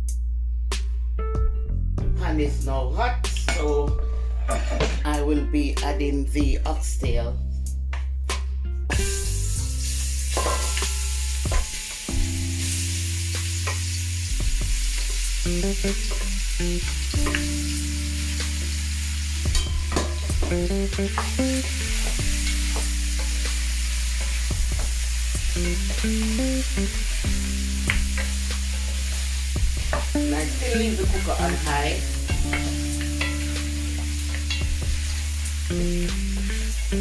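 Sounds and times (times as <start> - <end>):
spoon scraping and knocking pot: 4.3 - 5.0
meat sizzling in hot oil: 9.0 - 37.0.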